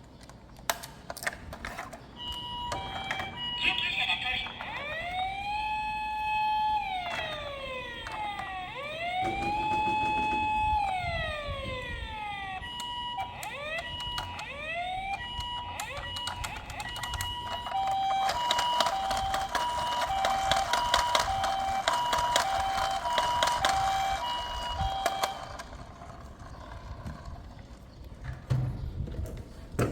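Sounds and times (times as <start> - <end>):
electronic toy siren: 2.2 - 27.3
clicking and rattling: 12.8 - 28.6.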